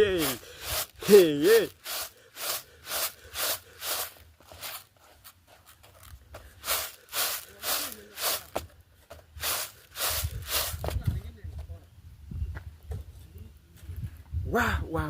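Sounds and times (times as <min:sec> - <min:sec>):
rhythmic scraping strokes: 0:00.0 - 0:04.8, 0:06.6 - 0:08.6, 0:09.4 - 0:10.9.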